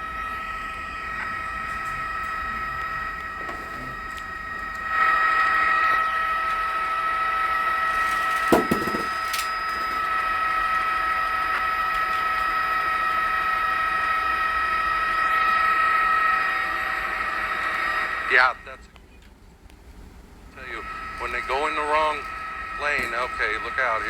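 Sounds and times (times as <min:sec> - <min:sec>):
helicopter cabin whine: 0:00.0 - 0:24.0.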